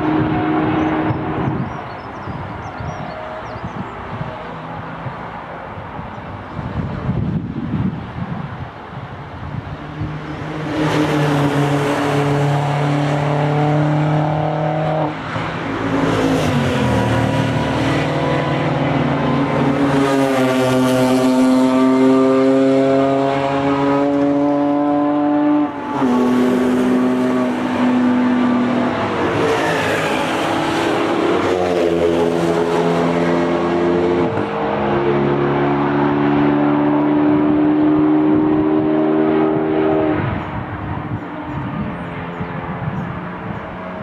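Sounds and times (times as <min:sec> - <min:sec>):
race car engines at high revs: 0:09.4 - 0:44.0.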